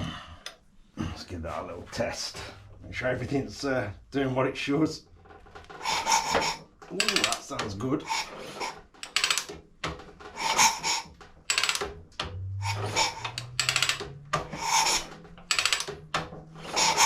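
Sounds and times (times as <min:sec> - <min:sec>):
motorcycle kickstart ratcheting: 0:05.2 - 0:17.0.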